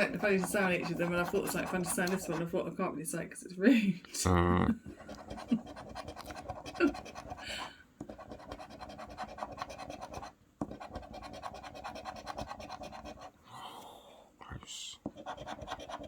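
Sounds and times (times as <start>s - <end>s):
coin scratching a scratchcard: 0.0s - 2.5s, 5.0s - 7.4s, 8.0s - 13.3s, 15.1s - 16.0s.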